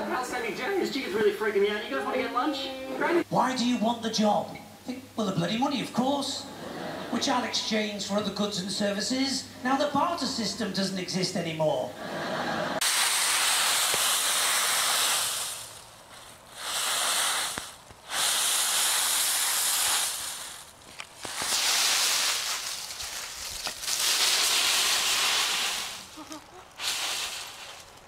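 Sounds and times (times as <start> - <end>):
dry leaves rustling and crunching: 12.8 - 28.0.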